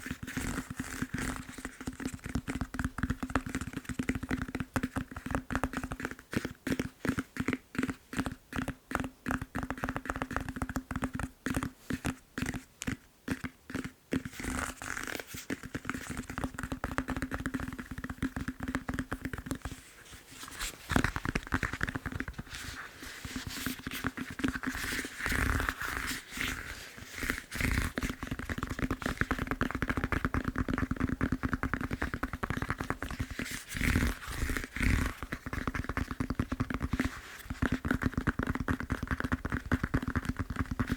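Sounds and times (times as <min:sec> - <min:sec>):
tapping on foam roller: 0:15.6 - 0:19.8, 0:27.2 - 0:40.9.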